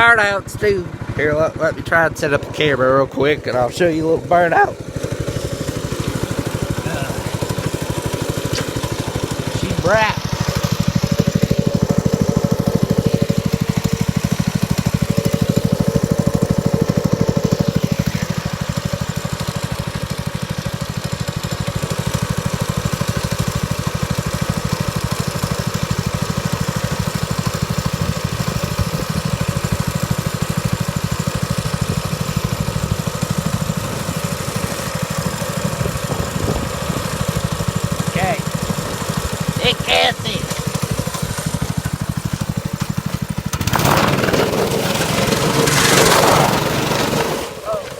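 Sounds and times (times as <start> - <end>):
dirt bike engine running: 0.0 - 47.9.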